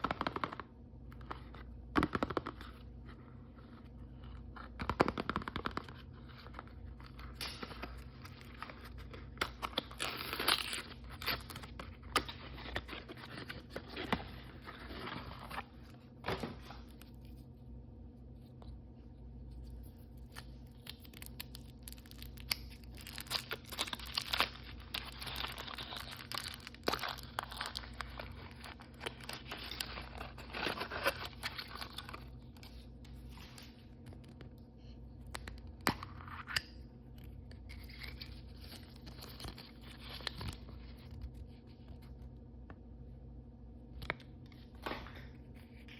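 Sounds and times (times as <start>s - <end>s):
plastic packaging crinkling: 19.6s - 34.3s.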